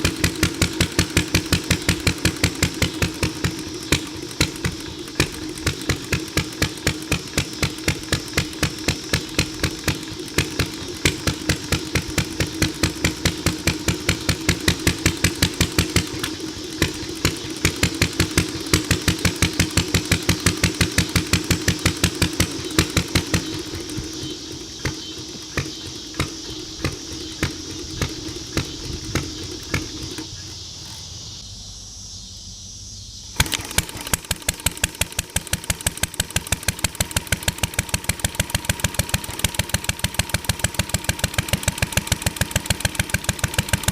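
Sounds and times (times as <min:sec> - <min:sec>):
single-cylinder engine exhaust beat: 0:00.0 - 0:43.9.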